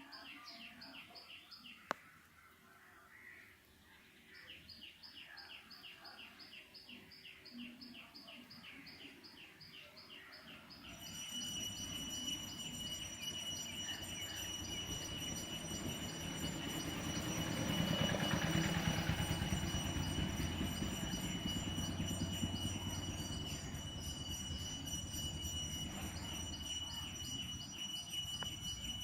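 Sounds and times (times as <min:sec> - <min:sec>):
bird chirping: 0:00.0 - 0:29.0
high whine: 0:10.9 - 0:29.0.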